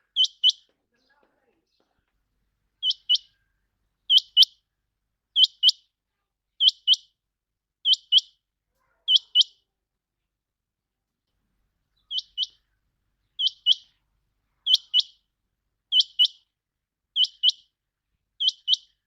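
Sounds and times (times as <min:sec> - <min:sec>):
quail calling: 0:00.0 - 0:00.7, 0:02.8 - 0:03.5, 0:04.1 - 0:04.6, 0:05.4 - 0:05.8, 0:07.8 - 0:08.3, 0:09.0 - 0:09.6, 0:12.0 - 0:12.7, 0:13.4 - 0:14.0, 0:14.6 - 0:15.2, 0:15.9 - 0:16.4, 0:17.2 - 0:17.6, 0:18.4 - 0:19.0.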